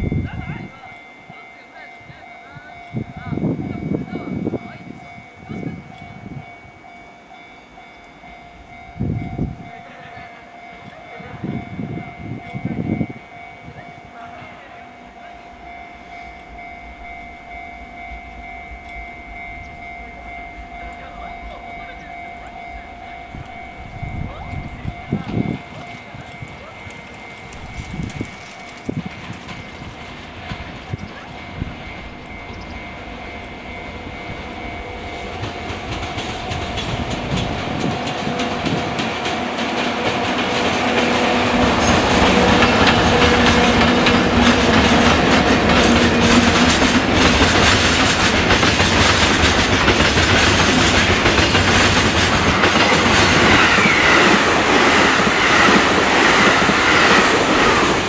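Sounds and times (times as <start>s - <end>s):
electric locomotive whine: 0.0s - 58.0s
passenger train passing close: 0.0s - 58.0s
train rumble: 0.0s - 58.0s
wheels clacking over rail joints: 24.5s - 58.0s.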